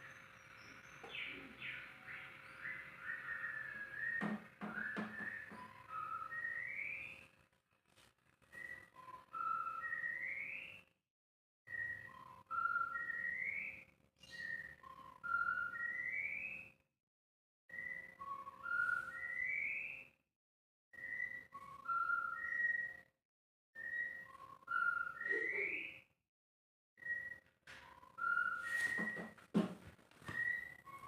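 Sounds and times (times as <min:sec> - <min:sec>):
bird whistling a phrase: 0:01.0 - 0:07.2, 0:23.8 - 0:26.1.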